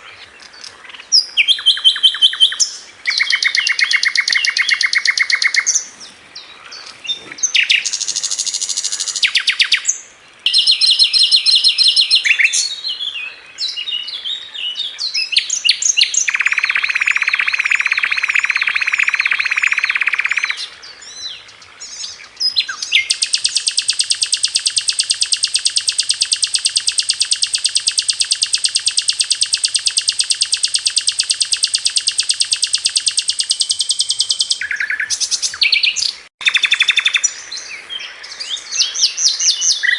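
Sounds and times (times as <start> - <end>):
songbird singing with rapid trill: 0.0 - 39.9.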